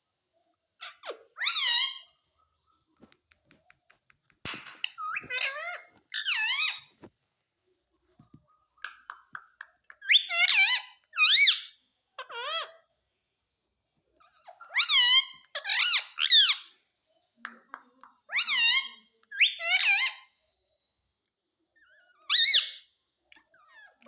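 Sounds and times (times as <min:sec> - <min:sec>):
parrot squawking: 0:00.8 - 0:02.2, 0:04.8 - 0:07.0, 0:10.0 - 0:12.8, 0:14.2 - 0:16.8, 0:18.3 - 0:20.3, 0:21.8 - 0:24.0.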